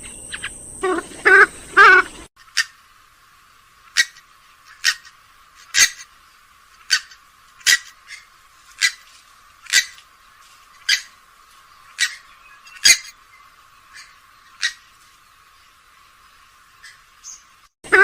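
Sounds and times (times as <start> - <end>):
swamphen short sharp calls: 0.0 - 2.8, 3.9 - 6.1, 6.8 - 10.0, 10.7 - 11.2, 11.8 - 13.2, 13.8 - 15.0, 16.8 - 18.0.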